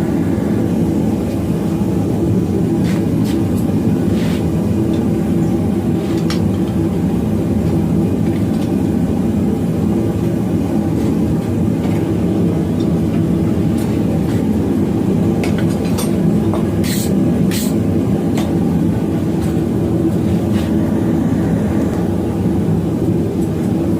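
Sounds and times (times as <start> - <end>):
forge roaring: 0.0 - 2.8, 19.2 - 23.9.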